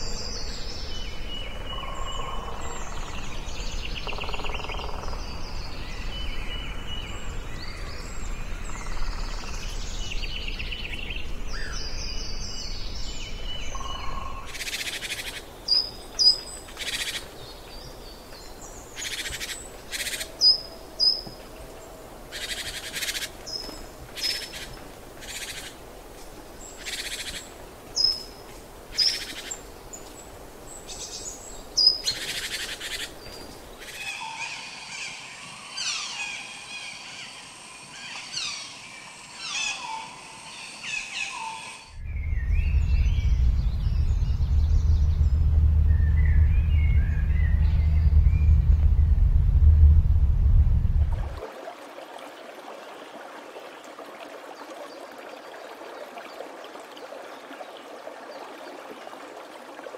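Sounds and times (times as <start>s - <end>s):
low rumbling ambience: 41.9s - 51.4s.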